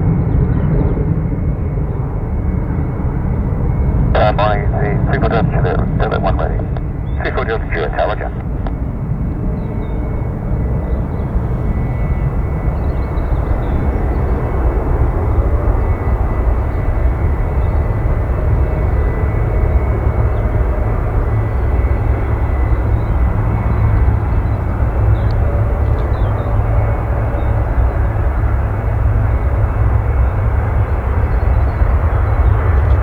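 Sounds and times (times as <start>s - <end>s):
jet engines rumbling: 0.0s - 33.0s.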